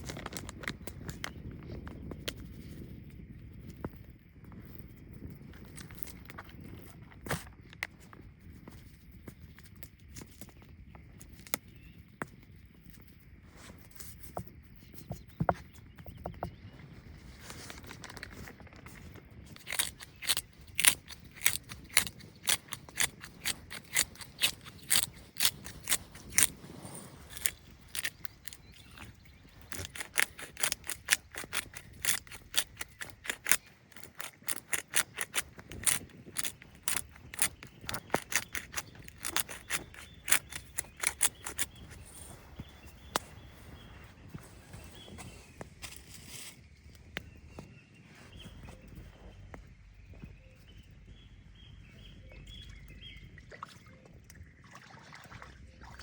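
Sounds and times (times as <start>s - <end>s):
sharp short clicks: 27.3s - 41.9s.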